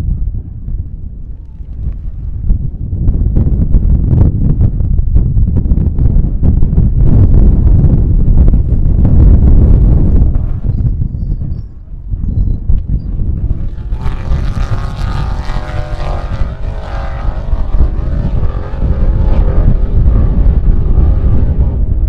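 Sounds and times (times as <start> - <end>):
wind buffeting microphone: 0.0 - 22.0
vehicle engine running: 13.2 - 22.0.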